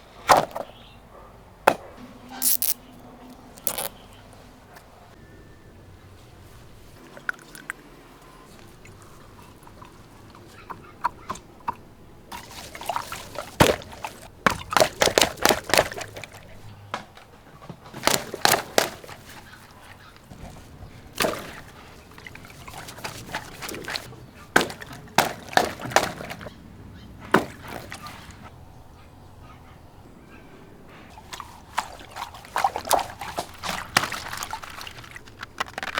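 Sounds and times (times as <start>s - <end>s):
rubber toy squeaks and squelches: 2.4s - 4.0s
water sloshing: 2.4s - 29.6s, 30.7s - 35.9s.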